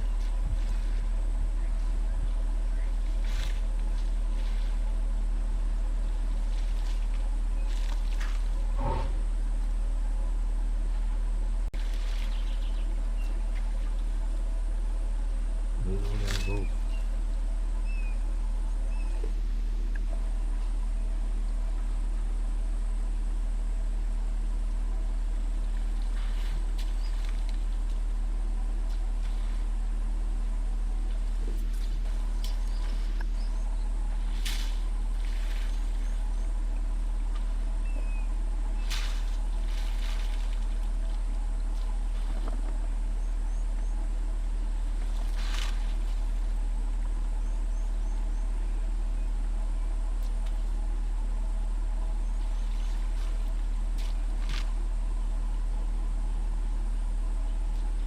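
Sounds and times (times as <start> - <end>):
vehicle engine idling: 0.0 - 58.0.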